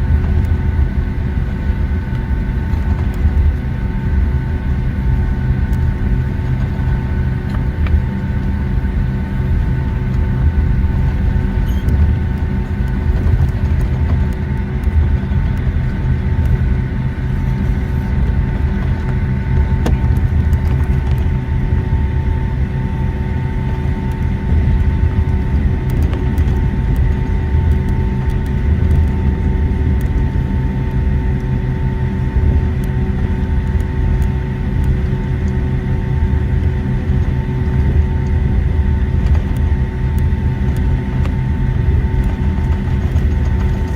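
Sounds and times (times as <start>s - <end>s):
aircraft cabin rumble: 0.0s - 43.9s
jet engines whining: 0.0s - 43.9s
faint clicks and rattles: 39.0s - 43.9s.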